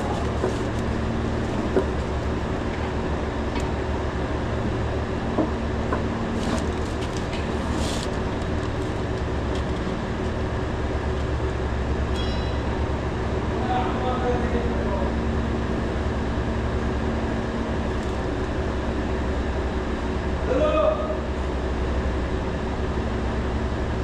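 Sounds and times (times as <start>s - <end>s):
machinery droning: 0.0s - 24.0s.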